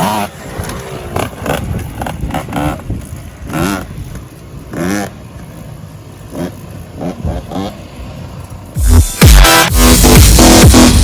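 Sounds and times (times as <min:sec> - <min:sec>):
dirt bike engine revving: 0:00.0 - 0:04.0, 0:04.7 - 0:05.3, 0:06.3 - 0:08.0.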